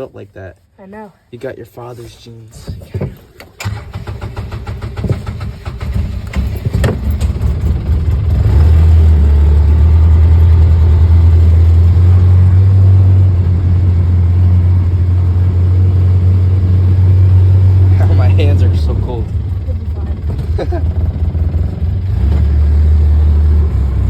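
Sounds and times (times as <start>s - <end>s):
vehicle engine droning: 2.7s - 24.0s.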